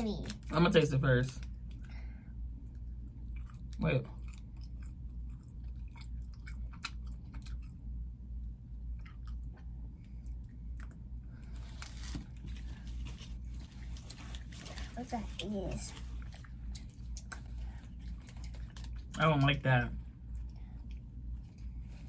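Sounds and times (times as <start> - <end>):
low steady hum: 0.0 - 22.0
person chewing crunchy snack: 3.2 - 7.9, 16.0 - 19.2.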